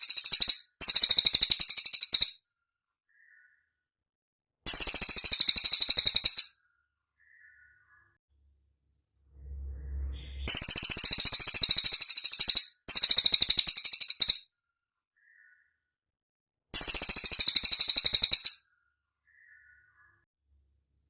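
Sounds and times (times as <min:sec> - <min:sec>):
soft low rumble: 0:08.4 - 0:11.3.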